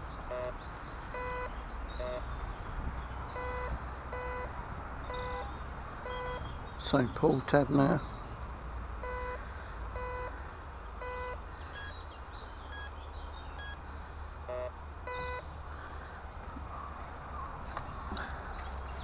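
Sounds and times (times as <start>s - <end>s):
metal detector beeps: 0.3s - 2.2s, 3.4s - 4.5s, 5.1s - 5.5s, 6.1s - 6.4s, 9.0s - 9.4s, 10.0s - 10.3s, 11.0s - 12.0s, 12.7s - 12.9s, 14.5s - 15.4s.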